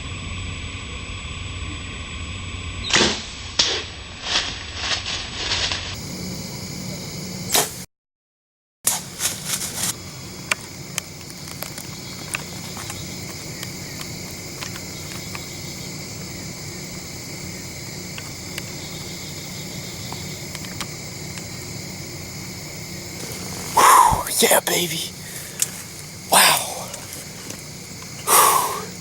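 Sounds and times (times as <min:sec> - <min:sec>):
crickets and insects trilling: 0:00.0 - 0:07.8, 0:08.9 - 0:29.0
faint ticks: 0:25.6 - 0:28.3.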